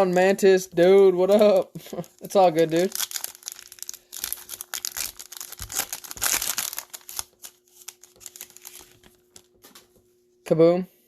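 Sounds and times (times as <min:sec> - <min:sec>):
faint steady hum: 0:00.0 - 0:11.0
foil wrapper crinkling: 0:01.0 - 0:09.8.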